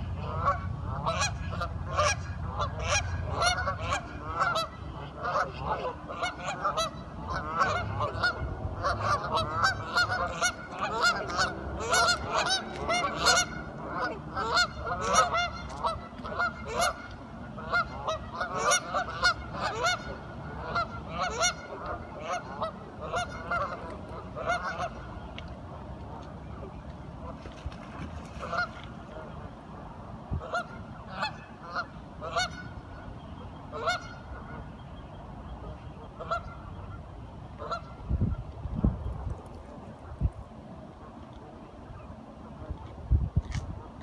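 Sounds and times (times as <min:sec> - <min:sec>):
ducks quacking: 0:00.0 - 0:25.2, 0:27.2 - 0:29.4, 0:30.4 - 0:33.1, 0:33.7 - 0:34.7, 0:35.6 - 0:37.0, 0:37.6 - 0:38.4.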